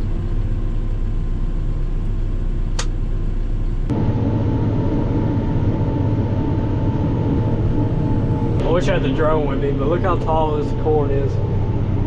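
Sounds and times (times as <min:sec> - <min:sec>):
harvester engine rumble from cab: 0:00.0 - 0:12.0
steady hum: 0:01.7 - 0:12.0
sharp click: 0:02.7 - 0:03.0.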